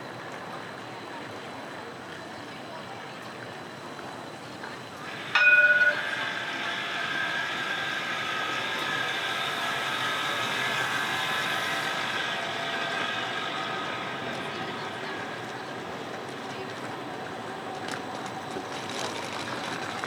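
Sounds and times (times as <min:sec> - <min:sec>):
tram rolling past: 0:03.5 - 0:20.0
high steady tones: 0:05.0 - 0:16.1.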